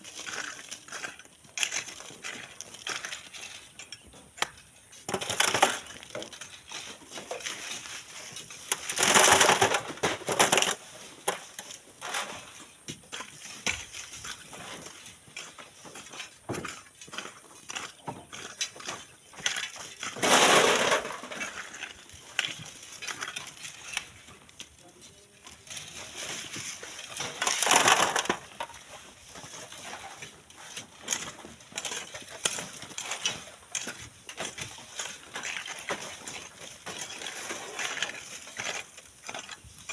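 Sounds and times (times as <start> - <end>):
pebbles clicking and clattering: 0.0 - 12.5, 16.5 - 24.8, 25.8 - 30.4
sand and gravel pouring: 5.1 - 15.2, 19.2 - 39.9.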